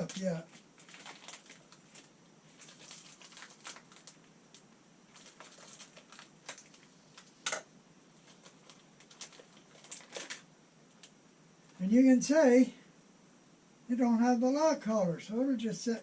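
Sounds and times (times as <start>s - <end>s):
packaging crinkling and rustling: 0.0s - 11.2s.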